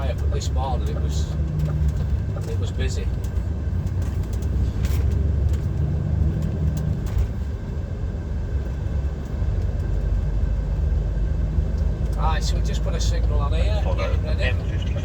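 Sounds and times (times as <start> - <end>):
diesel engine drone: 0.0 - 15.0
road noise: 0.0 - 15.0.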